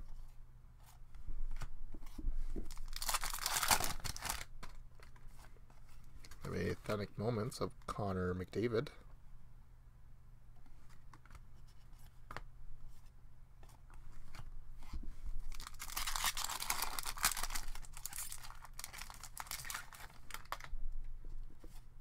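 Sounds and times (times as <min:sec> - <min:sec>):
foil wrapper crinkling and tearing: 0:02.7 - 0:04.5, 0:15.5 - 0:20.7.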